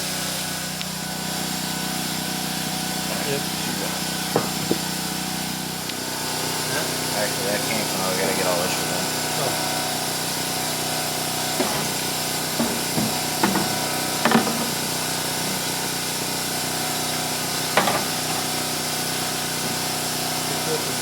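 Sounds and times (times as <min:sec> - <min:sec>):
steady background hum: 0:00.8 - 0:21.0
parts knocking and clattering: 0:04.3 - 0:05.0, 0:11.1 - 0:16.8, 0:17.5 - 0:20.4.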